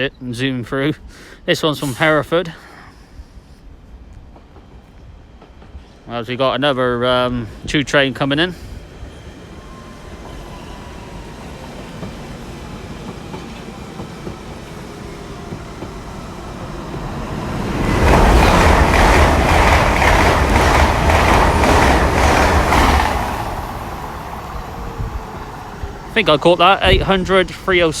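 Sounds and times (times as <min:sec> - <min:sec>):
train rumble: 0:03.2 - 0:28.0
train passing at speed: 0:03.7 - 0:28.0
wheels clicking over rail joints: 0:16.9 - 0:24.2.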